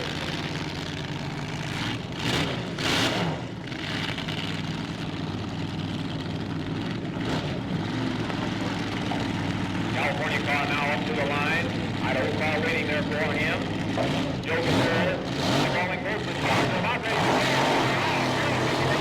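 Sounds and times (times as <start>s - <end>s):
dragster engines idling: 0.0s - 19.0s
engine throttle blips: 0.0s - 19.0s.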